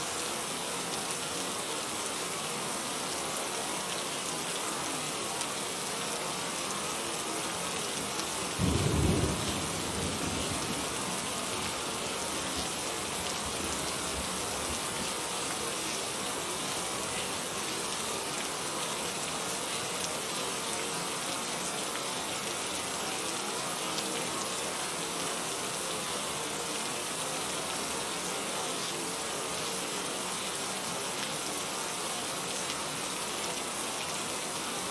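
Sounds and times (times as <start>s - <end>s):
steady rain: 0.0s - 34.9s
low rumble of thunder: 8.6s - 13.8s.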